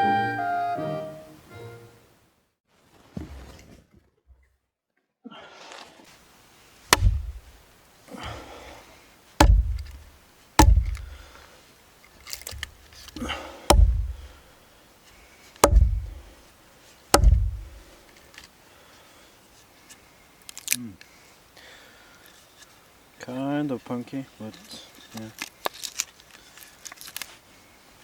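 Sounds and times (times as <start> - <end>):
axe chopping firewood: 6.9 - 7.6, 8.2 - 8.6, 9.4 - 11.4, 12.3 - 14.4, 15.6 - 16.4, 17.1 - 17.9
light knocks: 6.9 - 7.6, 9.4 - 11.3, 12.3 - 14.4, 15.6 - 16.3, 17.2 - 17.9.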